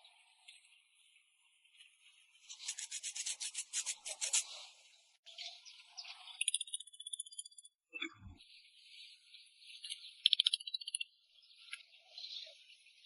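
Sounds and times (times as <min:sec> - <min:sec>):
abrasive rubbing strokes: 0:02.5 - 0:04.6.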